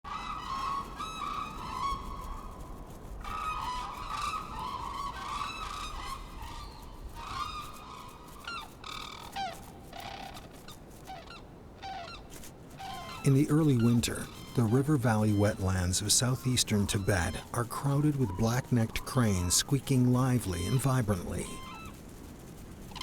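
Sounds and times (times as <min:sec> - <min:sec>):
cranes honking calls: 0:00.1 - 0:02.4, 0:03.2 - 0:23.0.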